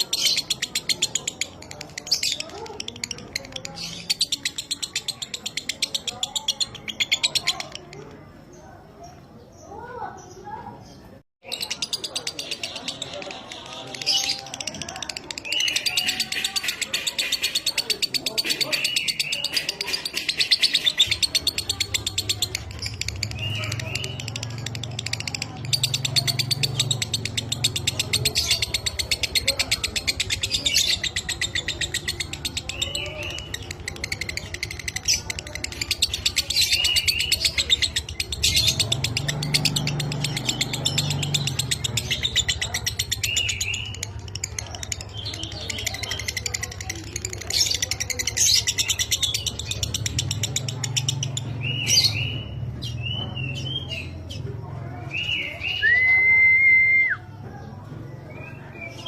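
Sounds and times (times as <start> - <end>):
lovebird chattering trill: 11.4 - 54.2.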